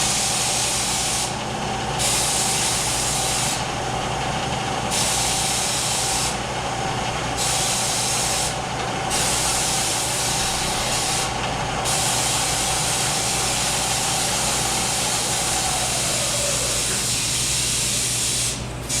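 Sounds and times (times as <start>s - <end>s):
milling machine spindle whine: 0.0s - 17.4s.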